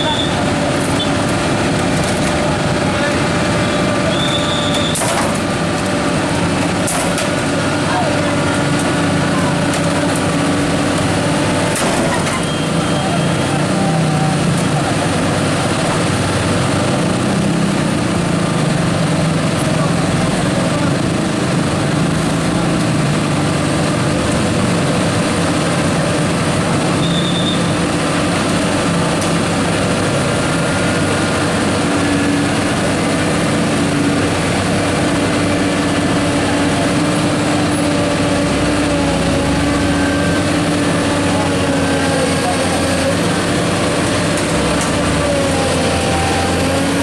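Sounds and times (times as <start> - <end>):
heavy truck diesel engines: 0.0 - 47.0.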